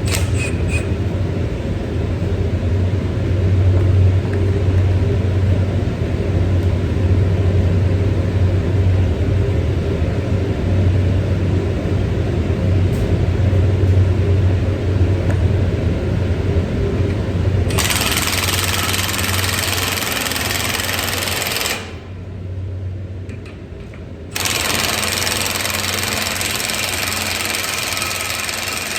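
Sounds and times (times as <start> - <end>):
machine humming: 15.6 - 28.9.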